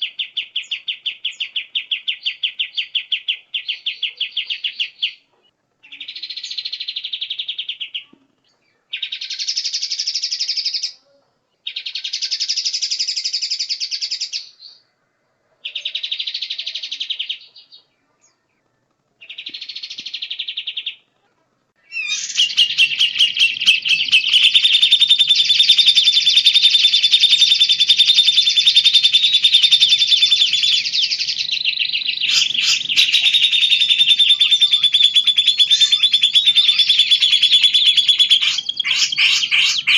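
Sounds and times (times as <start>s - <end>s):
bird chattering song: 0.0s - 11.0s, 11.6s - 14.9s, 15.6s - 21.2s, 21.8s - 39.9s
faint low hum: 17.4s - 19.4s
songbird buzzy trill: 21.8s - 39.9s.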